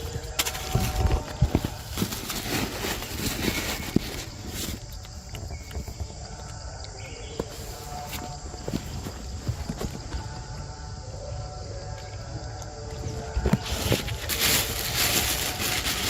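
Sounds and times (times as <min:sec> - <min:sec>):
rustling: 0:00.0 - 0:06.6, 0:13.2 - 0:16.0
high insect drone: 0:00.0 - 0:16.0.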